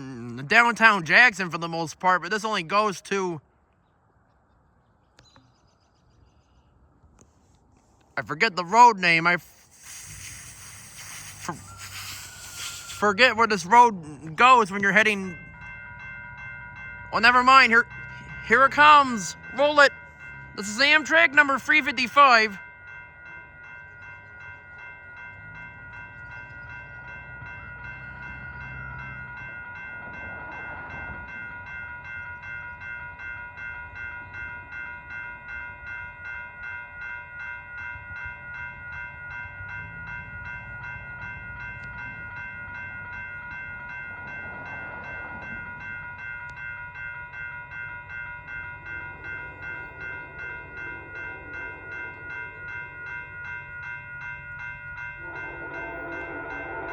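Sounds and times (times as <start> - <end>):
railroad crossing bell ringing: 0.0 - 3.6, 8.2 - 56.9
train rumble: 7.3 - 22.6, 38.1 - 56.9
low train horn chord: 49.0 - 53.4, 55.1 - 56.9.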